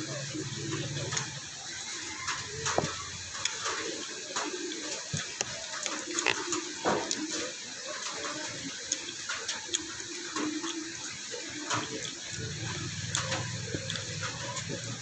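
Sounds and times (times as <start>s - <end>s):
wet chewing and crunching: 0.1s - 15.0s
mouth clicks and smacks: 5.0s - 7.2s.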